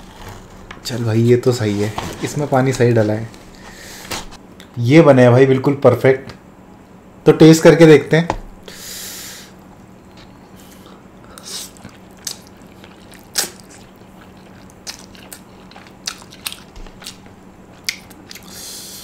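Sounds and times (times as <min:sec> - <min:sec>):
faint low hum: 0:00.0 - 0:19.0
wet chewing of noodles: 0:10.0 - 0:18.8.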